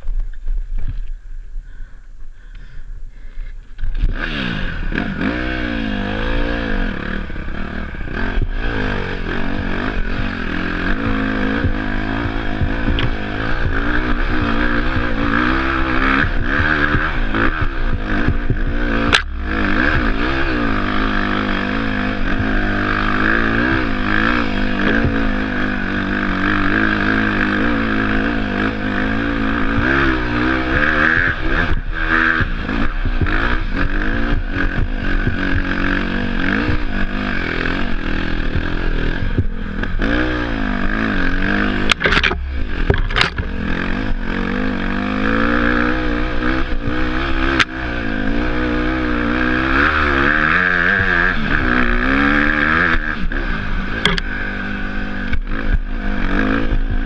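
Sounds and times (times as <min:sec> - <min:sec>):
motorbike engine revving: 0:03.8 - 0:57.0
sharp knocks: 0:41.8 - 0:44.2.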